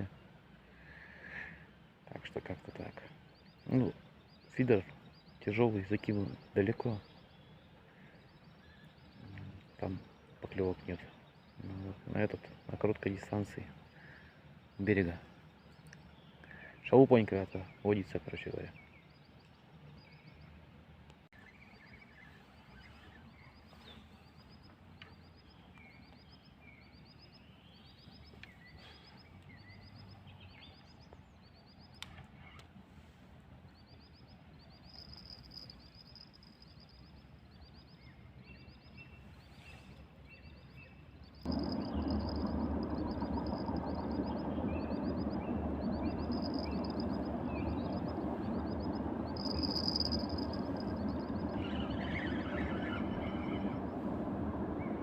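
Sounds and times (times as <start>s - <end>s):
high-pitched chirping: 41.5s - 55.0s
loud steady rushing noise: 41.5s - 55.0s.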